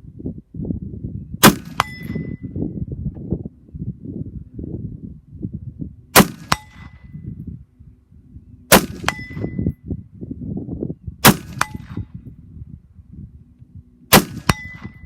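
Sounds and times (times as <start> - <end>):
rifle shots: 1.4 - 2.2, 6.2 - 7.0, 8.7 - 9.5, 11.2 - 12.1, 14.1 - 15.0
bullet clanging on steel target: 1.7 - 2.4, 9.0 - 9.7, 14.5 - 15.0.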